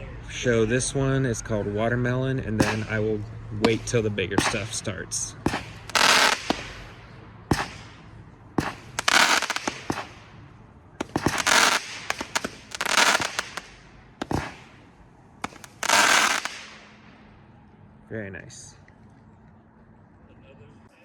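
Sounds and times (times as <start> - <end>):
firework shots firing: 2.5 - 17.3
firework shell crackling burst: 2.6 - 17.3.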